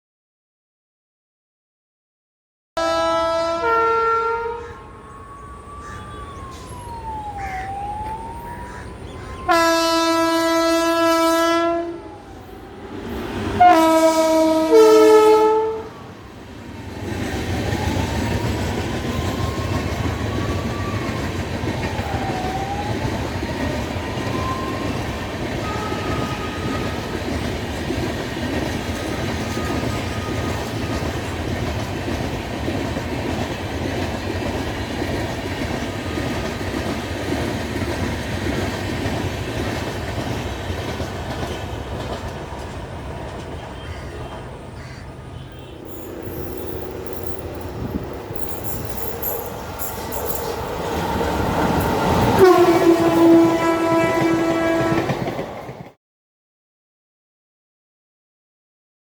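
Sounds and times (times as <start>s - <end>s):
locomotive horn blasts: 2.8s - 4.9s, 9.5s - 12.2s, 13.6s - 16.0s, 25.6s - 27.2s, 52.1s - 55.4s
train coaches rumbling past: 2.8s - 56.0s
wheel clatter: 45.5s - 51.0s.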